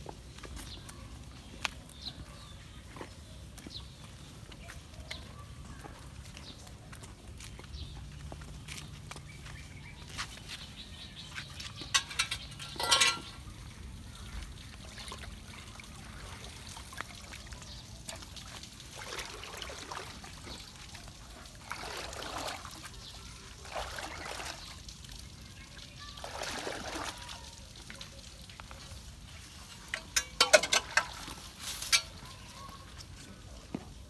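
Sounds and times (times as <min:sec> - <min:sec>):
water trickling and pouring: 0:10.9 - 0:32.7.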